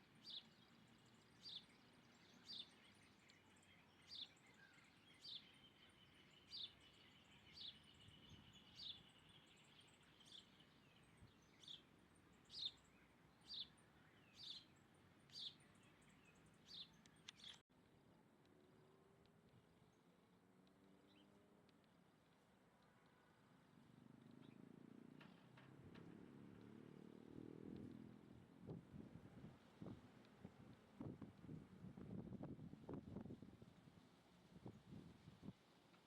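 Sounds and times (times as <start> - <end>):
bird chirping: 0.0 - 17.6
faint outdoor hiss: 0.0 - 36.0.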